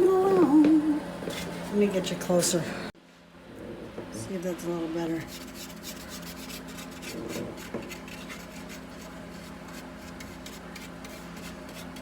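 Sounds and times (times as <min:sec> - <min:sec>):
brush scratching on wood: 0:05.2 - 0:12.0.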